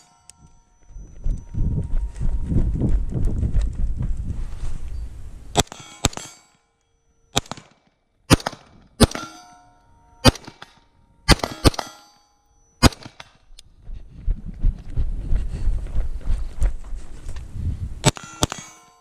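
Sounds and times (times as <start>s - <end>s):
metallic ringing: 0.0s - 3.2s, 4.8s - 7.4s, 9.0s - 13.8s, 18.0s - 19.0s
rifle shots: 7.3s - 9.4s, 10.2s - 10.7s, 11.3s - 11.9s, 12.8s - 13.3s.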